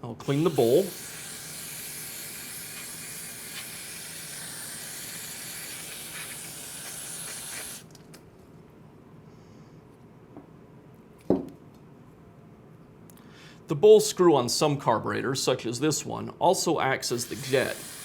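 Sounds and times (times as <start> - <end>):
aerosol spray hissing: 0.2 - 7.9, 17.1 - 18.0.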